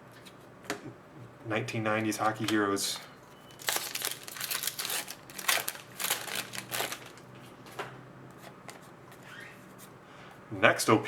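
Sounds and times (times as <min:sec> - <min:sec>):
card wrappers crinkling and clicking: 0:02.0 - 0:03.0, 0:03.6 - 0:07.3.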